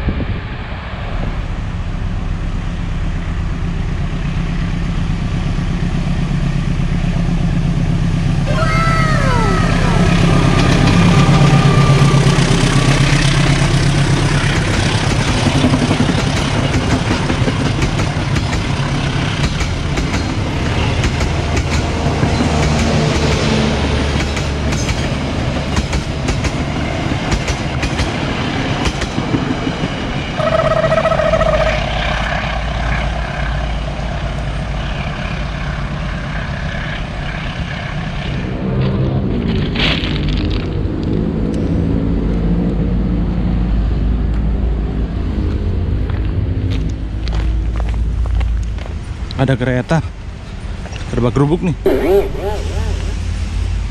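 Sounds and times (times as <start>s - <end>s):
diesel train engine: 0.0s - 53.9s
train horn: 9.6s - 13.5s, 30.4s - 32.2s
wheels clicking over rail joints: 13.2s - 31.8s.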